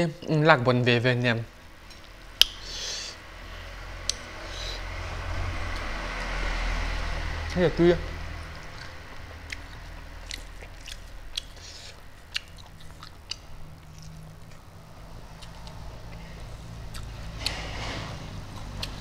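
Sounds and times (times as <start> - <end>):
low hum: 0.8 - 19.0
man chewing food: 1.8 - 19.0
sharp mouth clicks: 2.4 - 3.2, 8.6 - 14.6.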